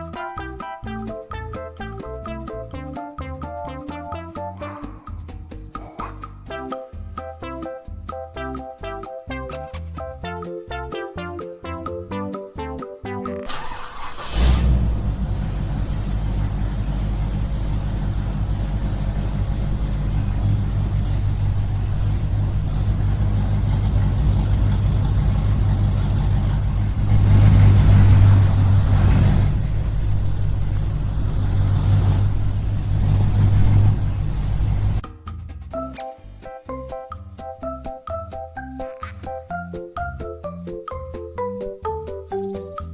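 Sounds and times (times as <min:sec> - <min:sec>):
small engine droning: 0:13.5 - 0:35.0.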